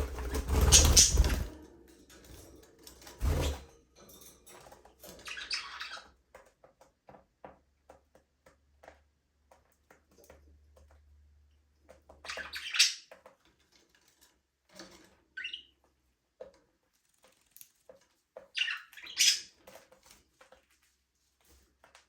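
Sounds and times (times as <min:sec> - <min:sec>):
budgerigars chirping: 0:12.3 - 0:13.1, 0:18.6 - 0:19.5.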